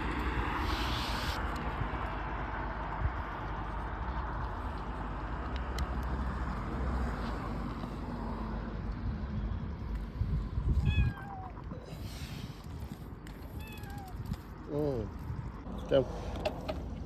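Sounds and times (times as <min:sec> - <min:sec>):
bike rumble: 0:00.0 - 0:17.0
wind noise: 0:08.9 - 0:17.0.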